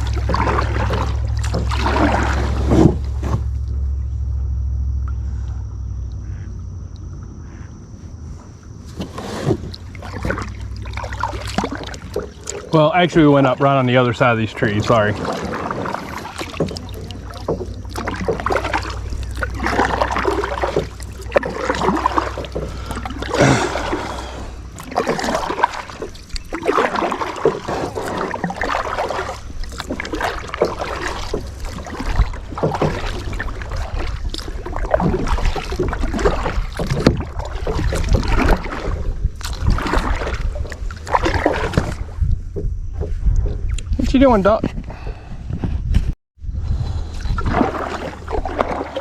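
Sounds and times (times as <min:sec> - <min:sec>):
paddle splashing in water: 0:00.0 - 0:03.9, 0:07.4 - 0:45.3, 0:46.6 - 0:49.0
water dripping: 0:09.7 - 0:37.5.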